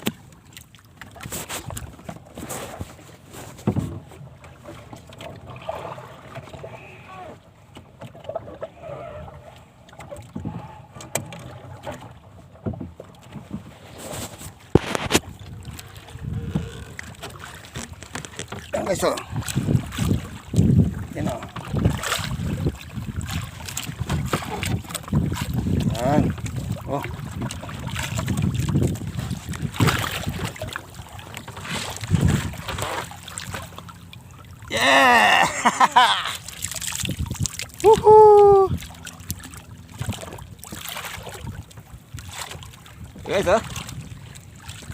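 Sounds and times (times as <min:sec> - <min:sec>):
knocks and clatter on a boat: 0:00.0 - 0:34.7, 0:35.6 - 0:44.9
water sloshing: 0:00.0 - 0:44.9
wind buffeting microphone: 0:14.7 - 0:17.2, 0:17.9 - 0:33.6, 0:36.9 - 0:44.9.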